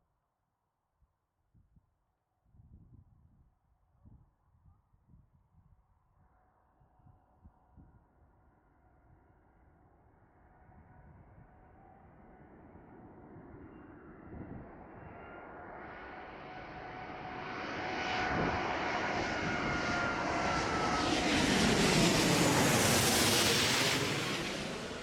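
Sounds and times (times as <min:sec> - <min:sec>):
jet engines roaring: 0:18.3 - 0:25.0.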